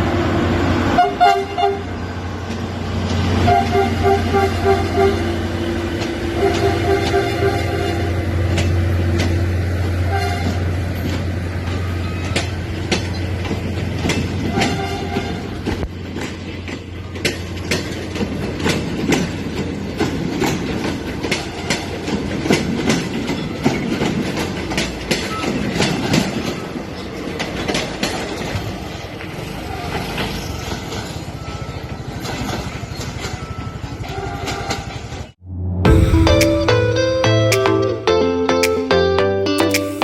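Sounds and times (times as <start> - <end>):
locomotive engine droning: 0.0 - 17.6
wheels clacking over rail joints: 0.8 - 35.4
train horn toots: 0.9 - 2.0, 3.3 - 5.6, 6.2 - 8.3, 10.0 - 10.8.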